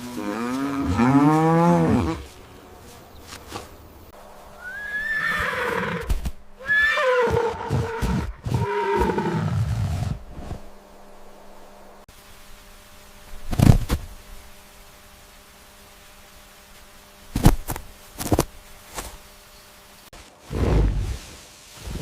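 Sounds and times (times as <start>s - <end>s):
animal calling: 4.6s - 10.2s.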